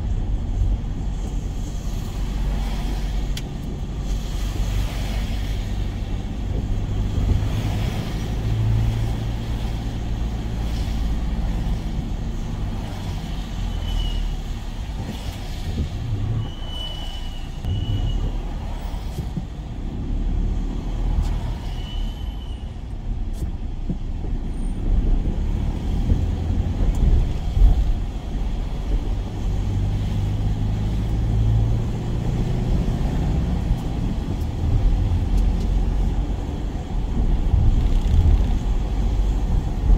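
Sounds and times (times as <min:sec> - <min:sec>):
van engine and road noise: 0:00.0 - 0:39.9
faint high squeaks: 0:16.3 - 0:18.4.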